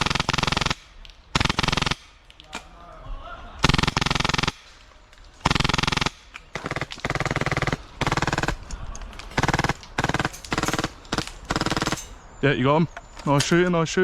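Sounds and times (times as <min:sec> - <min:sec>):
airsoft gun firing bursts: 0:00.0 - 0:02.2, 0:03.6 - 0:04.8, 0:05.4 - 0:08.7, 0:09.3 - 0:12.1.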